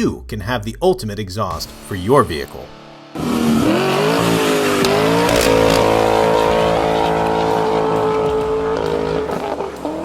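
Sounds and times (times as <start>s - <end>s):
car engine revving high: 3.1s - 10.0s.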